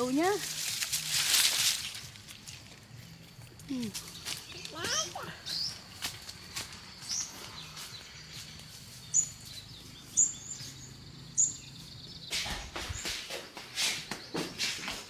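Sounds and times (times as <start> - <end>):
rustling noise: 0.0 - 4.8, 5.8 - 9.6, 12.3 - 15.0
small bird chirping: 2.3 - 13.4.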